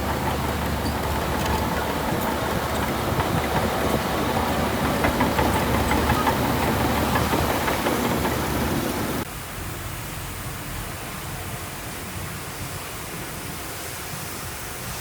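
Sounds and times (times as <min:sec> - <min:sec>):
heavy diesel engine running: 0:00.0 - 0:09.3.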